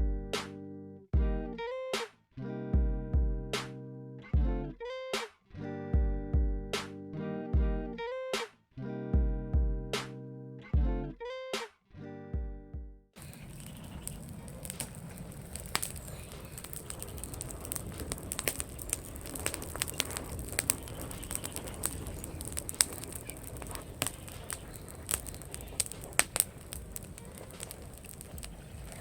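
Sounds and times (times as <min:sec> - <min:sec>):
bonfire crackling and popping: 0:13.2 - 0:29.0.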